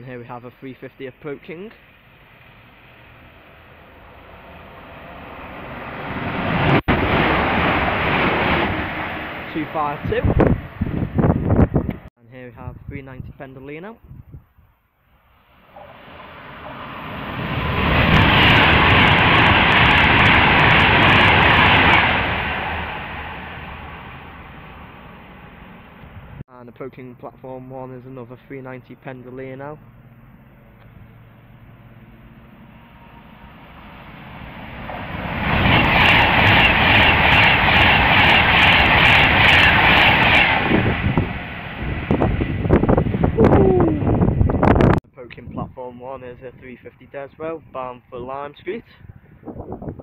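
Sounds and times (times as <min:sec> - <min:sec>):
electric train passing at speed: 0:01.3 - 0:12.1, 0:15.0 - 0:26.4, 0:28.3 - 0:45.0.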